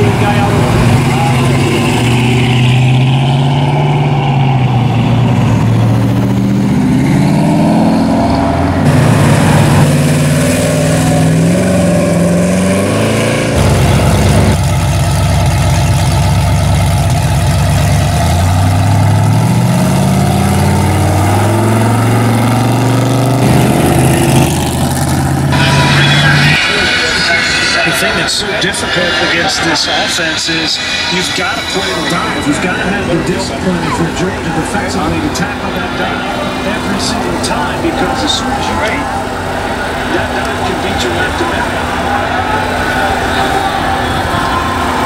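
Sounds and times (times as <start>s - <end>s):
big engine idling: 0.0s - 45.0s
car engines revving: 0.0s - 45.0s.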